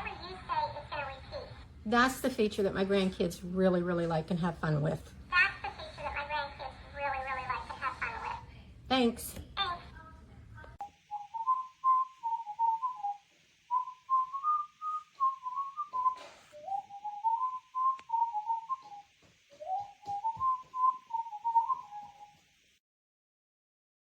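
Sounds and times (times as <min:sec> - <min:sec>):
toy playing whistled electronic tune: 0:13.8 - 0:22.4.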